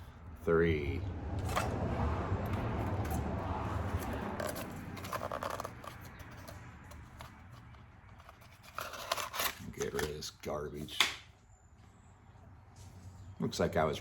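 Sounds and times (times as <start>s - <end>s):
rustling and scraping of packaging: 1.4s - 11.0s.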